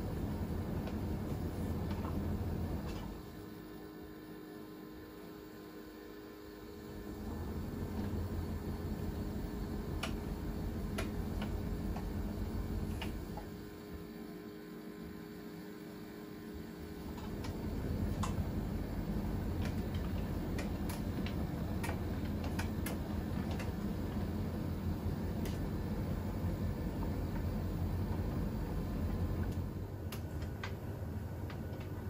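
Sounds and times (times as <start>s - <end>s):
steady hum: 0.0s - 32.0s
washing machine drum turning: 7.2s - 13.7s, 17.0s - 32.0s.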